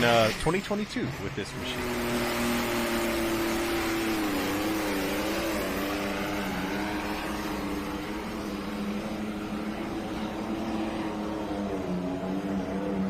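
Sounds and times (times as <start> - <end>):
engine running hard under load: 0.0 - 13.0.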